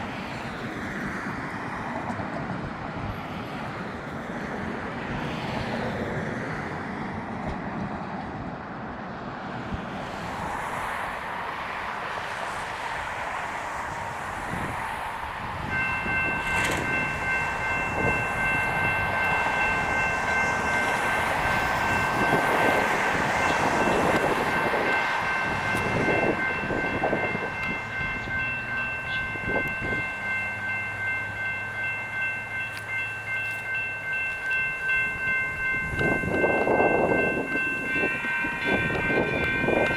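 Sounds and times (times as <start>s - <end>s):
light rail train rumbling: 0.0s - 39.9s
railroad crossing bell ringing: 13.0s - 39.9s
train knocking: 15.5s - 39.9s.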